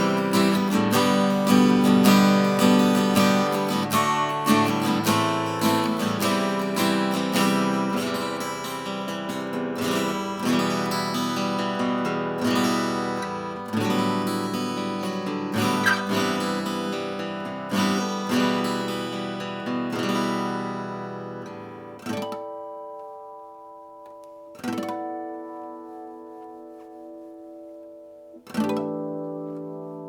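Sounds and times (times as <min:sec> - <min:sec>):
acoustic guitar strummed and picked: 0:00.0 - 0:30.0.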